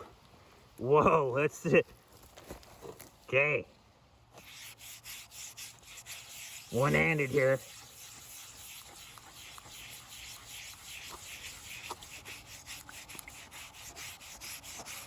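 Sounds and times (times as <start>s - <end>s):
scratch pad scrubbing metal: 4.4s - 15.0s.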